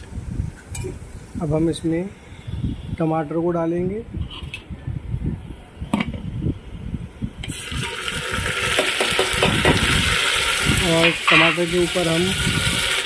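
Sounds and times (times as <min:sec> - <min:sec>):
loud sizzle: 0:07.4 - 0:13.0
tomatoes sizzling in hot oil: 0:07.4 - 0:13.0.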